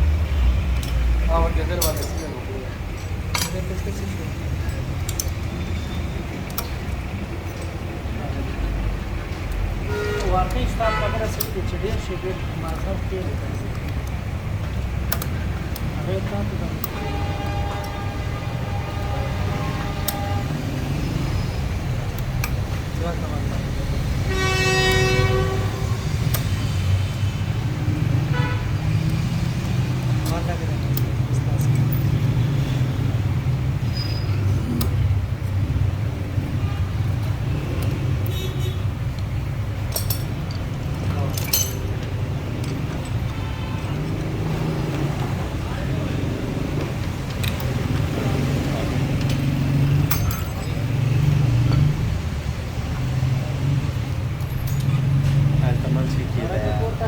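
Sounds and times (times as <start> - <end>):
low rumble of traffic: 0.0 - 57.0
light metallic clinks: 1.7 - 4.0, 39.2 - 43.4, 49.2 - 51.9, 54.4 - 55.4
vehicle horn blast: 9.8 - 11.4, 16.9 - 20.8, 24.2 - 26.2, 28.3 - 28.8.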